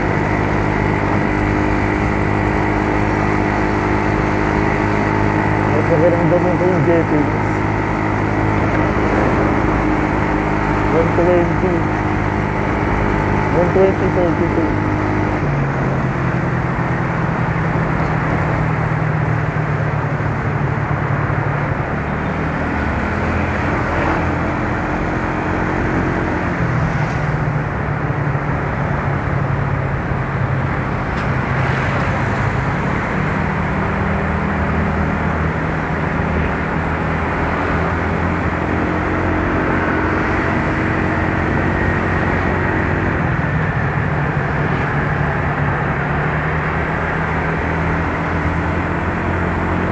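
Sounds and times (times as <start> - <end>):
scooter engine running: 0.0 - 15.7, 21.4 - 49.9
wind and road rush: 0.0 - 49.9.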